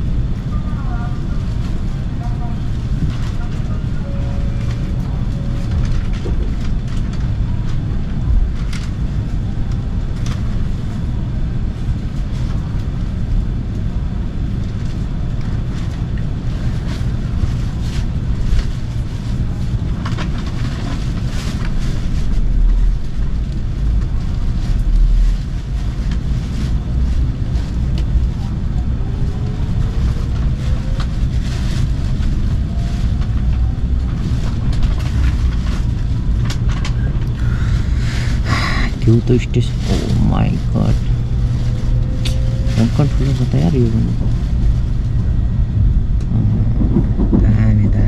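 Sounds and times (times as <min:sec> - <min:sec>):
train carriage low rumble: 0:00.0 - 0:48.0.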